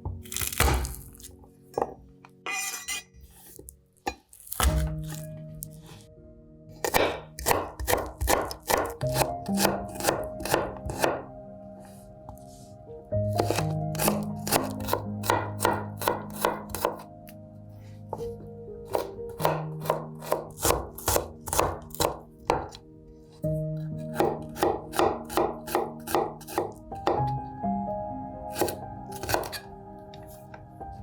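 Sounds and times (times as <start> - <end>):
soft background music: 0.0 - 31.0
knife chopping on cutting board: 0.3 - 1.9, 3.4 - 5.3, 6.8 - 11.2, 13.3 - 17.1, 18.9 - 22.8, 24.0 - 27.3, 28.5 - 29.6.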